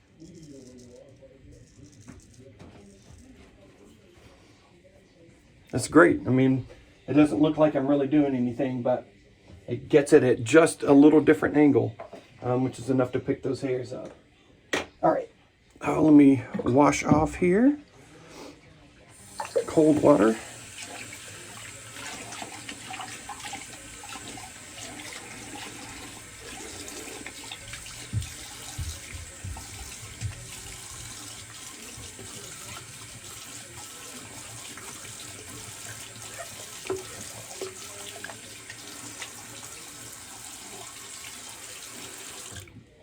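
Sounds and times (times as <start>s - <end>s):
water running from tap: 19.1s - 42.7s
water splashes: 19.2s - 42.7s.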